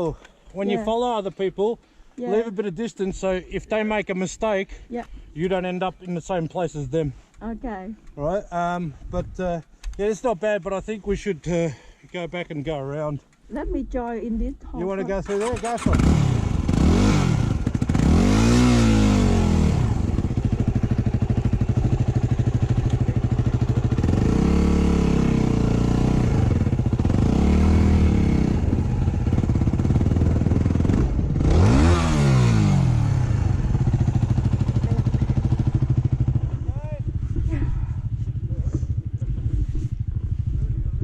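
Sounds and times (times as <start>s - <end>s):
motorcycle engine revving: 15.2s - 41.0s.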